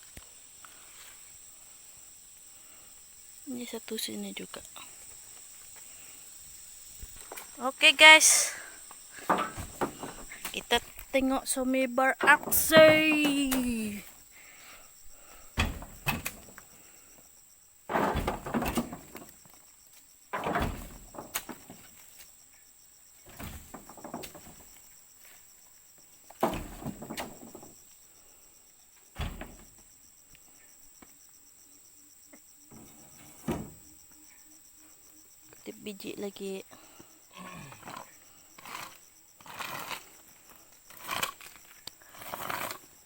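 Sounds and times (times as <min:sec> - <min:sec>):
heavy thuds of fruit bunches: 0:07.9 - 0:11.4, 0:12.2 - 0:14.2, 0:15.0 - 0:16.8, 0:17.9 - 0:19.4, 0:20.3 - 0:22.0, 0:23.3 - 0:24.8, 0:26.3 - 0:27.8, 0:29.2 - 0:29.9, 0:32.7 - 0:33.9.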